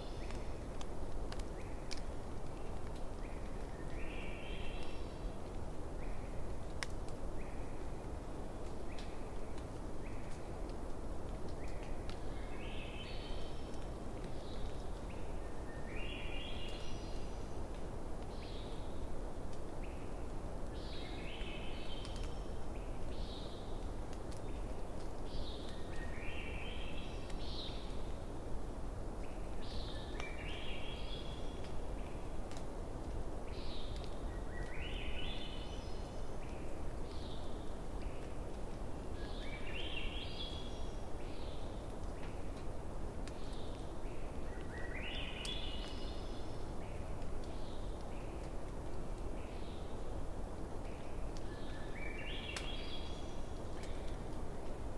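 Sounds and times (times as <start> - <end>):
faint campfire crackles: 0.0 - 54.9
low outdoor hiss: 0.0 - 54.9
songbird singing: 1.4 - 6.6, 11.5 - 19.2, 19.8 - 28.4, 29.2 - 32.4, 33.5 - 42.6, 43.2 - 50.2, 50.8 - 54.9.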